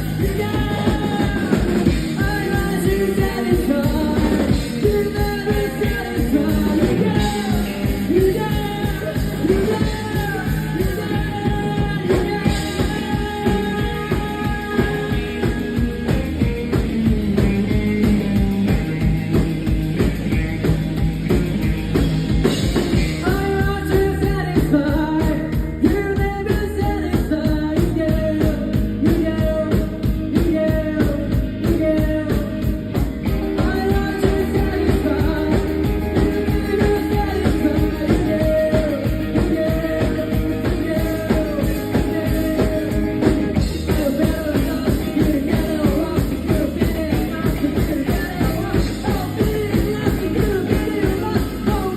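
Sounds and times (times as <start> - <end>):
person singing: 0.0 - 19.4, 22.4 - 51.9
drum kit beat: 0.0 - 51.9
live rock band playing: 0.0 - 51.9.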